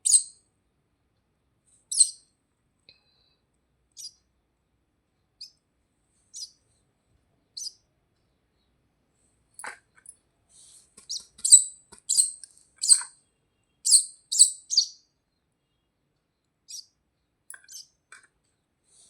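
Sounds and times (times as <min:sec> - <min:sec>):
young birds chirping: 0:01.9 - 0:02.2, 0:04.0 - 0:04.2, 0:06.3 - 0:06.6, 0:07.5 - 0:07.8, 0:11.0 - 0:13.1, 0:13.9 - 0:15.0, 0:16.7 - 0:16.9, 0:17.6 - 0:18.0.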